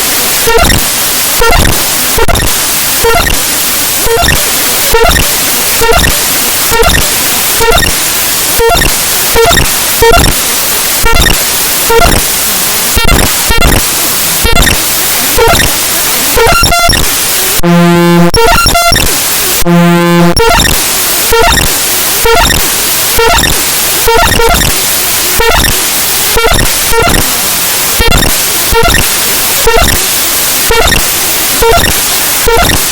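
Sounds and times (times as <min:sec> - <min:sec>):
short buzzing tones: 0:00.0 - 0:10.4, 0:13.0 - 0:24.8
harsh static: 0:00.0 - 0:32.9
stuttering clicks: 0:00.0 - 0:32.9.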